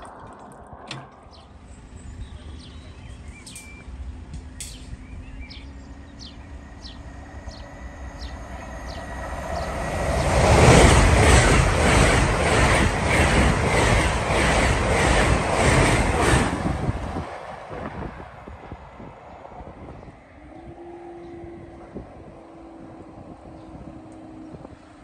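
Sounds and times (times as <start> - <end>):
electric train passing at speed: 0.0 - 25.0
wheels beating on rails: 5.6 - 21.2.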